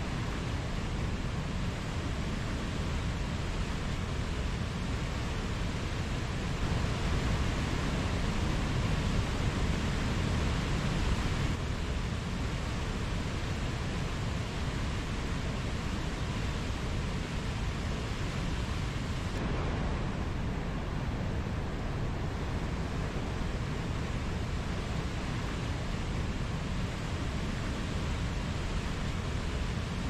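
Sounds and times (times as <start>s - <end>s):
mountain stream flowing: 0.0s - 30.0s.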